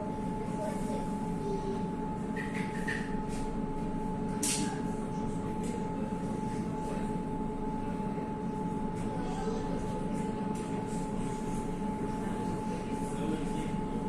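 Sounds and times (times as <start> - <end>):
electric tram running hum: 0.0 - 14.0
sharp click: 4.4 - 4.7.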